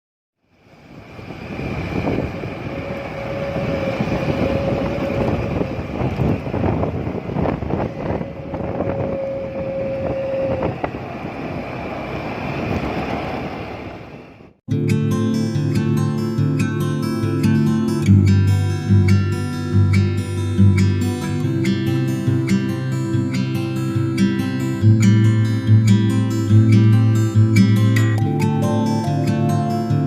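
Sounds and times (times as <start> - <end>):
wind and road noise: 0.4 - 15.1
wind buffeting microphone: 0.8 - 14.5.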